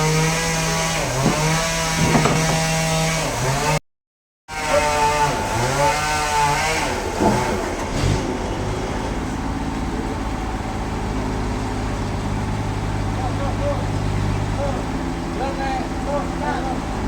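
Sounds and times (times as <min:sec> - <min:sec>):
engine revving: 0:04.6 - 0:09.1.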